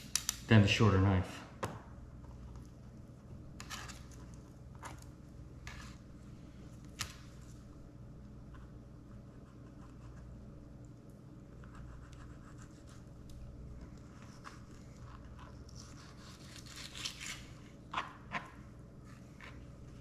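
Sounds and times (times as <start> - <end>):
knife scraping fish fillet: 14.2 - 17.6.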